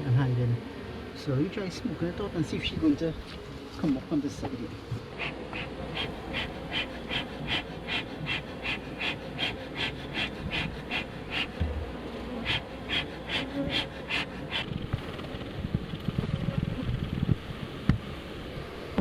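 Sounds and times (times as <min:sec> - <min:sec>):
honeybees buzzing: 0:00.0 - 0:19.0
bellows smoker hissing puffs: 0:05.0 - 0:14.9.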